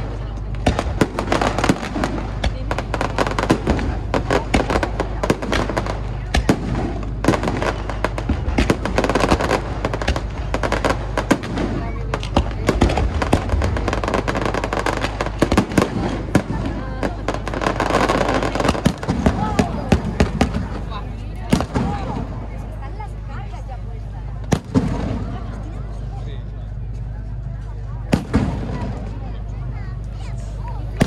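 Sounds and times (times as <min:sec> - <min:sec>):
fireworks crackling and banging: 0:00.0 - 0:31.0.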